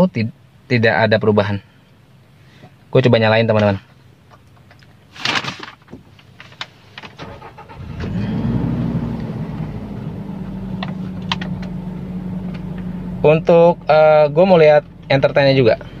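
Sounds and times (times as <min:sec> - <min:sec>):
car engine starting and idling: 0:06.5 - 0:16.0.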